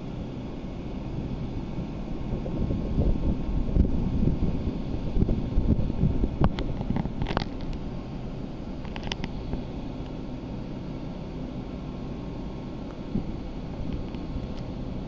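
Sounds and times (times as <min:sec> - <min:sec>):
wind buffeting microphone: 0:01.2 - 0:09.7, 0:13.0 - 0:14.8.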